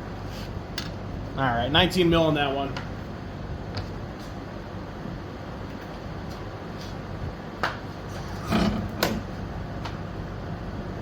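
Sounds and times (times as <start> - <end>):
steady low hum: 0.0 - 11.0
short scraping rattle: 8.1 - 9.2.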